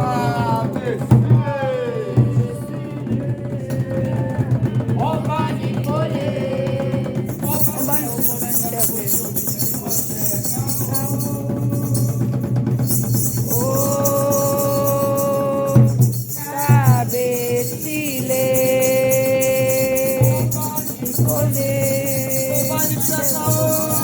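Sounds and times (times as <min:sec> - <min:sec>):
voices singing long notes: 0:00.0 - 0:24.0
rattle shaken fast: 0:06.8 - 0:24.0.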